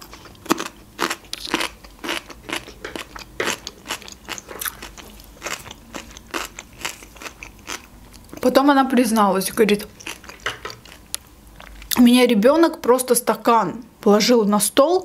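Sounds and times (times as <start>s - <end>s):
person chewing cucumber: 0.0s - 8.5s, 9.8s - 12.0s.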